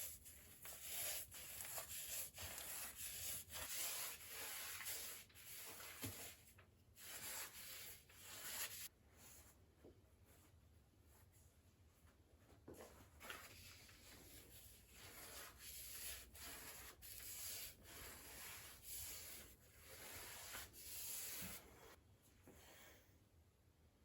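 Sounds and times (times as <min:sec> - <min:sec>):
scrubbing on a hard surface: 0:00.0 - 0:06.4, 0:07.0 - 0:08.9, 0:14.3 - 0:22.0.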